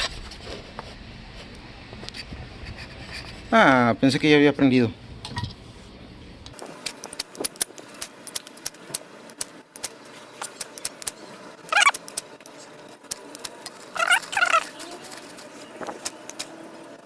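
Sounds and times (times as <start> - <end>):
campfire kindling crackling: 6.6 - 17.0
bird wavering calls: 11.7 - 12.1, 13.8 - 16.4.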